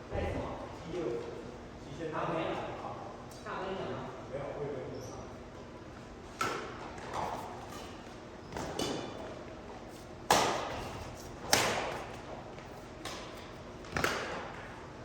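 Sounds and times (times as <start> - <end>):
rackets hitting shuttlecock: 6.3 - 9.4, 10.2 - 12.3, 12.9 - 14.8.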